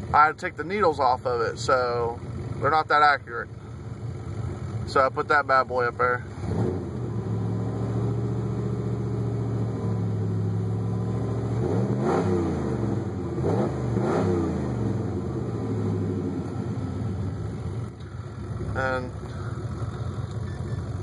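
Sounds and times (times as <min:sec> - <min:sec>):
engine idling: 0:00.0 - 0:11.4, 0:14.8 - 0:21.0
engine revving: 0:05.9 - 0:21.0.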